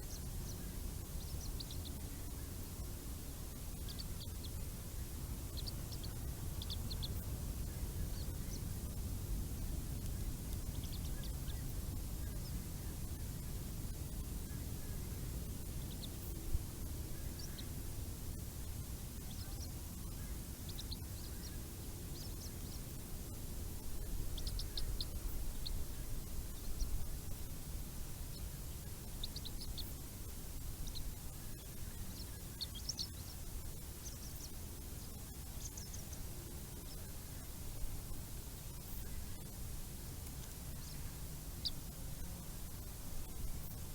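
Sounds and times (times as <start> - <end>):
steady low rumble: 0.0 - 43.9
birds chirping: 30.8 - 37.0.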